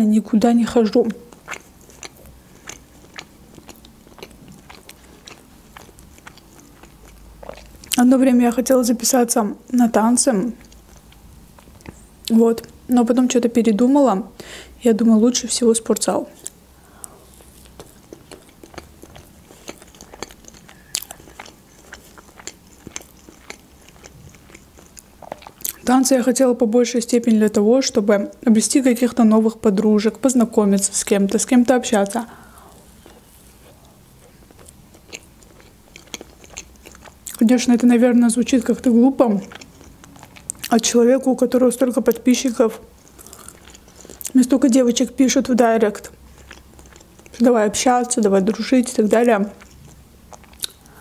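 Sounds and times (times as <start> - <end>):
person chewing with mouth clicks: 1.0 - 8.0, 10.6 - 12.8, 16.3 - 25.9, 30.8 - 37.5, 38.6 - 40.9, 42.8 - 44.4, 46.0 - 47.4, 49.5 - 51.0.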